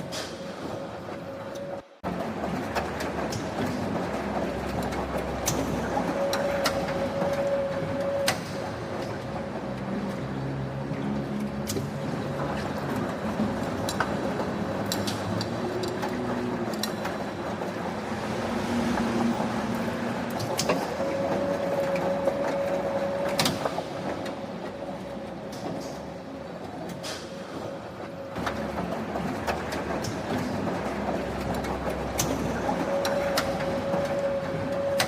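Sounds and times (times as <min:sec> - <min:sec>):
factory machinery running: 0:00.0 - 0:35.0
sharp metallic clicks and knocks: 0:11.4 - 0:17.7.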